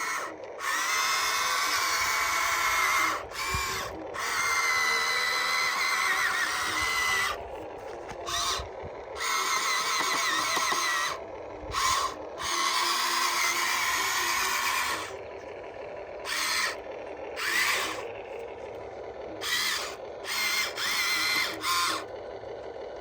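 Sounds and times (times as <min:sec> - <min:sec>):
small electric motors whining: 0:00.0 - 0:23.0.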